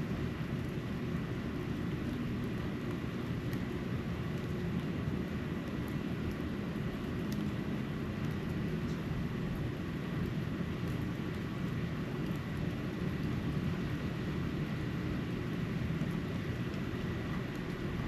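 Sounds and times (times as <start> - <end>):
low outdoor rumble: 0.0 - 18.0
faint ticks: 7.3 - 7.6.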